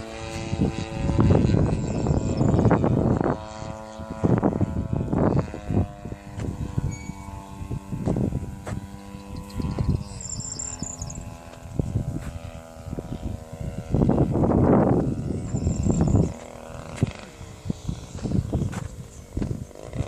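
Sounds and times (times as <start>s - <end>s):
model plane engine running: 0.0s - 20.0s
wind buffeting microphone: 0.0s - 20.0s.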